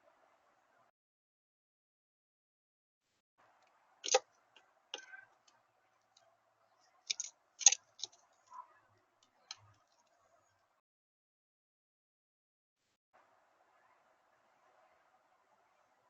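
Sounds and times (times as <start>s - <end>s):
faint steady hum: 0.0s - 0.9s, 13.2s - 16.0s
sharp irregular clicks and taps: 4.0s - 4.2s, 7.1s - 8.2s.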